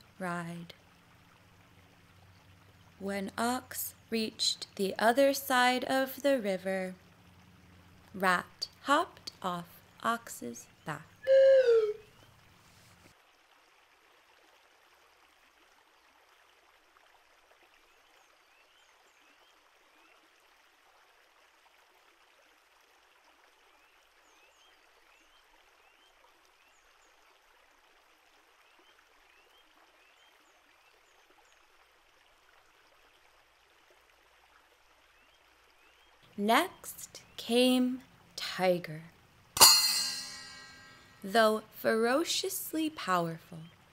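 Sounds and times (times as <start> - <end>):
stream flowing: 0.0 - 18.3.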